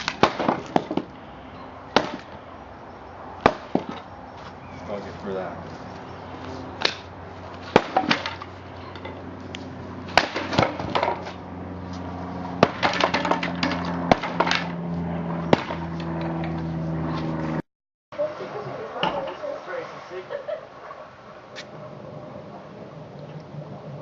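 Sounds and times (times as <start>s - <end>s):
sledgehammer striking wood: 0.0s - 1.1s, 1.9s - 2.4s, 3.4s - 4.1s, 7.6s - 8.5s, 10.1s - 11.4s, 12.6s - 14.7s, 15.5s - 15.9s
wood clattering and breaking: 0.0s - 1.1s, 3.4s - 4.1s, 7.7s - 9.1s, 10.1s - 11.4s, 12.6s - 14.8s
steady low hum: 18.2s - 24.0s.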